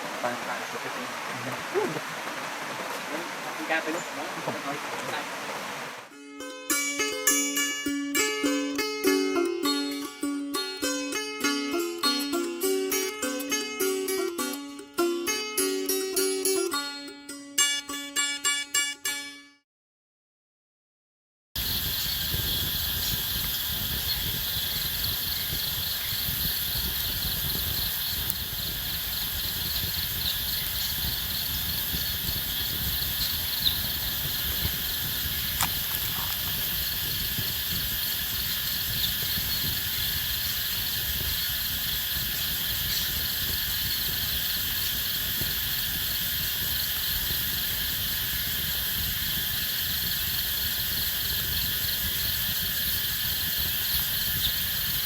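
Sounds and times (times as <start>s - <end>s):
insects chirping and trilling: 0.0s - 6.1s, 21.6s - 55.0s
faint clicks: 33.6s - 36.8s.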